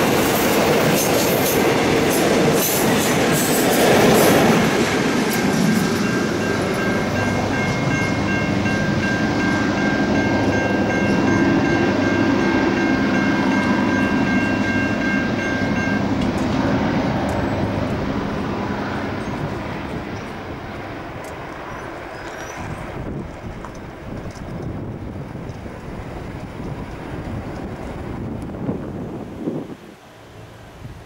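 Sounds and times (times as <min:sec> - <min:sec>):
train carriages rumbling on rails: 0:00.0 - 0:31.0
level crossing warning bell: 0:05.3 - 0:16.5.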